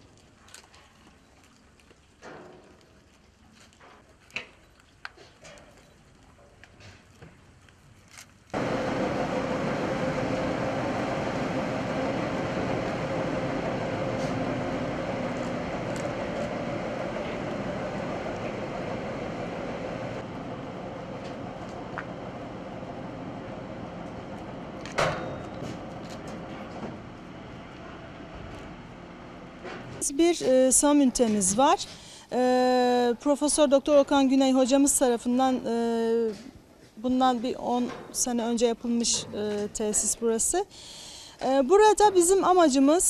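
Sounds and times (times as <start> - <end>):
milking machine humming: 8.6 - 30.1.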